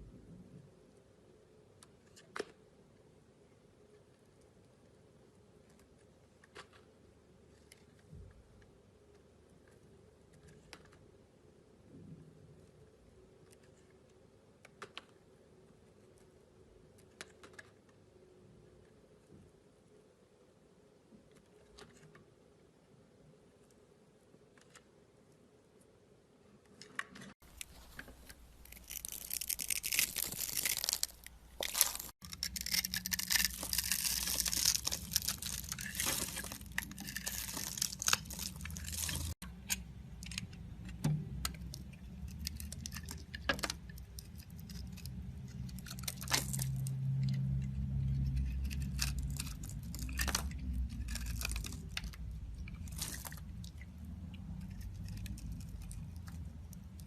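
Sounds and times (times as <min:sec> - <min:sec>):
blade carving soap: 0:27.4 - 0:40.4.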